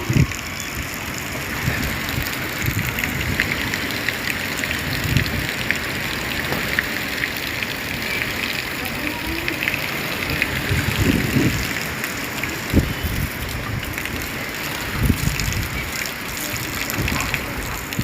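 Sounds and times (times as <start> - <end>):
heavy rain falling: 0.0 - 18.0
low wind gusts: 0.0 - 18.0.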